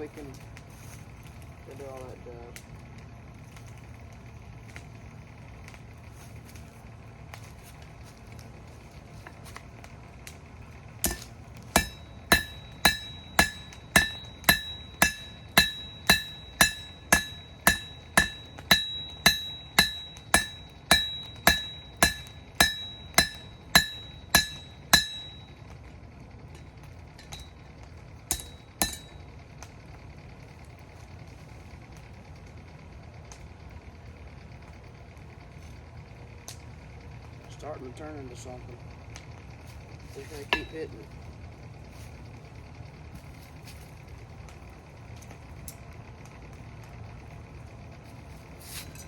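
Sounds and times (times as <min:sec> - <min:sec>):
hammer striking steel on anvil: 0:11.0 - 0:25.6, 0:27.2 - 0:27.6, 0:28.3 - 0:29.2, 0:40.2 - 0:41.0.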